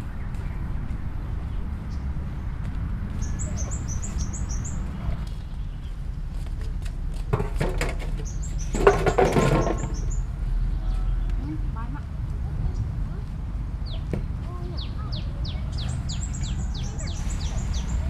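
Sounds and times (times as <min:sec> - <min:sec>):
steady low rumble: 0:00.0 - 0:07.4, 0:10.1 - 0:18.0
small bird chirping: 0:03.2 - 0:06.0, 0:08.2 - 0:11.5, 0:13.8 - 0:18.0
rustling and knocking from handling: 0:06.5 - 0:10.2.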